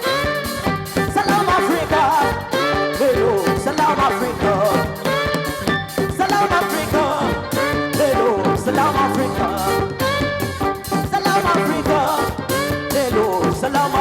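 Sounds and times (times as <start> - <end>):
live band playing: 0.0 - 14.0
wavering melody line: 0.0 - 14.0.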